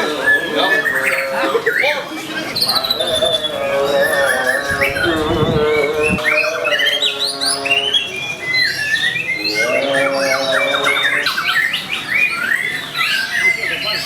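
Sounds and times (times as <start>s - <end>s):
birds singing whistled phrases: 0.0s - 14.0s.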